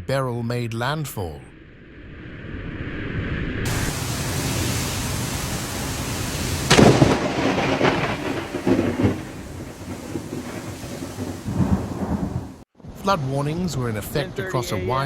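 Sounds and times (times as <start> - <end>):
thunder: 3.6 - 12.6
heavy rain hissing: 3.7 - 12.6.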